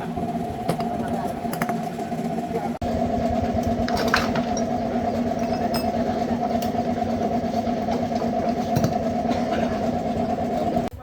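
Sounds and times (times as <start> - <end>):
machine motor humming: 0.0 - 10.9.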